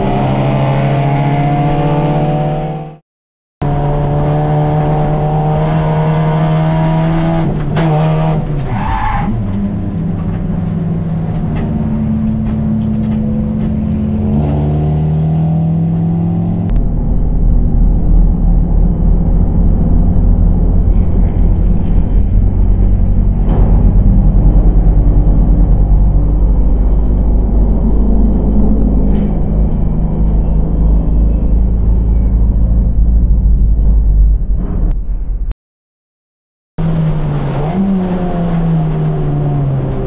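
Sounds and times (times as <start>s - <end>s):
race car engine revving: 0.0s - 3.0s, 3.6s - 16.8s, 36.8s - 40.0s
deep pulsing low rumble: 16.0s - 35.5s.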